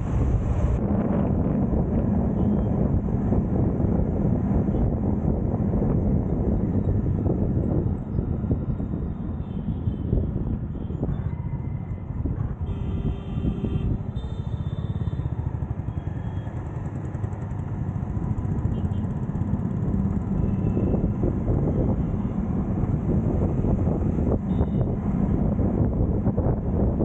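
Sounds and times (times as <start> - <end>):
traffic engines and road noise: 0.0 - 27.0
vehicle horn beeps: 12.6 - 16.6, 18.7 - 19.1, 24.5 - 25.0.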